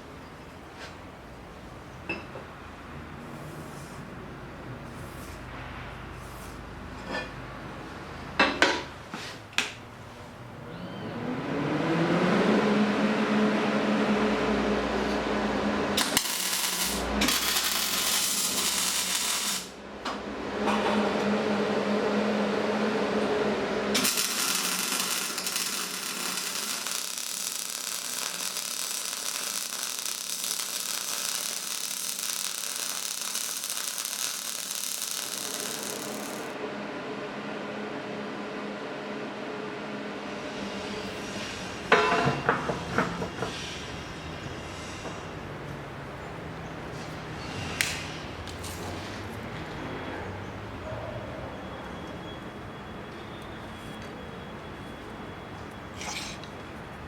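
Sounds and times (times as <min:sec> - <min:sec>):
harsh grinding hiss on steel: 0:16.0 - 0:19.8, 0:24.0 - 0:36.6
power tool motor running: 0:24.0 - 0:36.6.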